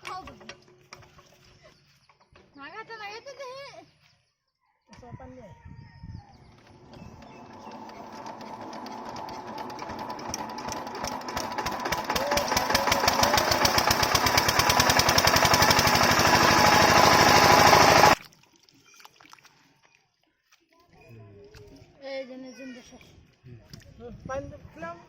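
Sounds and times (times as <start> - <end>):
diesel pump engine knocking: 7.2 - 18.2.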